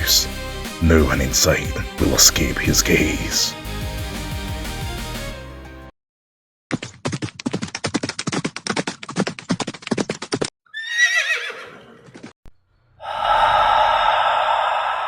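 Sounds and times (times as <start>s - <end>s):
horse hoofbeats galloping: 6.8s - 10.5s
horse whinnying: 10.7s - 12.2s
long breathy rush: 13.0s - 15.0s.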